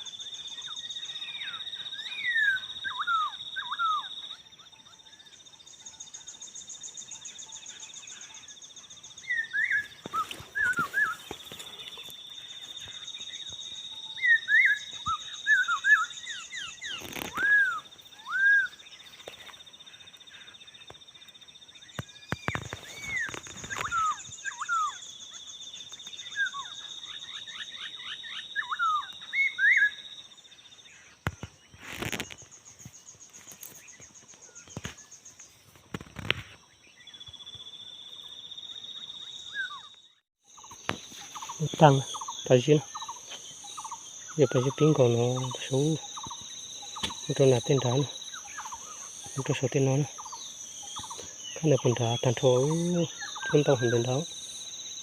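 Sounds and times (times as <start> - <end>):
birds whistling calls: 0.0 - 5.2, 5.9 - 19.6, 21.8 - 30.1, 38.9 - 54.3
high insect drone: 0.0 - 55.0.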